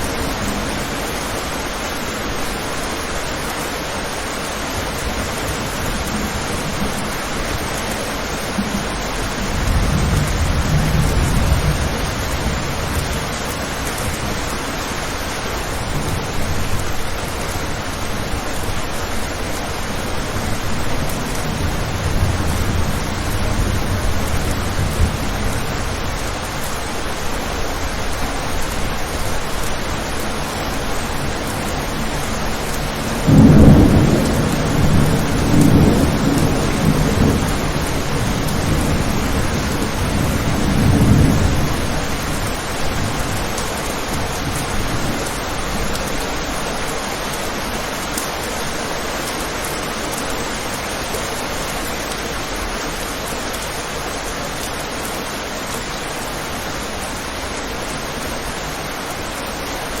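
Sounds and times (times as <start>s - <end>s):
rain on a window: 0.0s - 60.0s
thunder rumbling: 4.8s - 47.9s.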